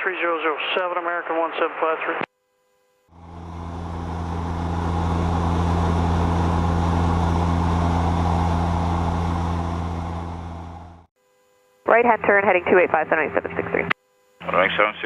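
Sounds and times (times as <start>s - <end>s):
turboprop engines droning: 3.1s - 11.1s, 11.9s - 15.0s.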